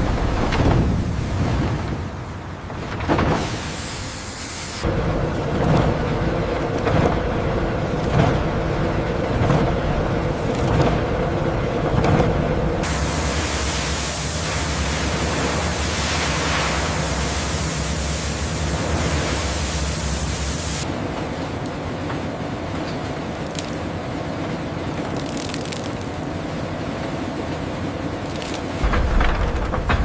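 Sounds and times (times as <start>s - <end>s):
factory machinery noise: 0.0s - 30.0s
low hum: 4.0s - 30.0s
broad even hiss: 12.8s - 20.8s.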